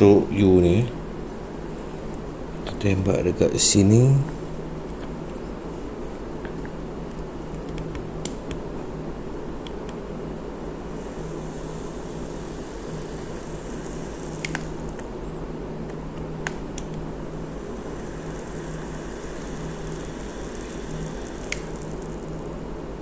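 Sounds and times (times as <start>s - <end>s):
plastic welder humming: 10.7s - 15.4s, 16.3s - 23.0s.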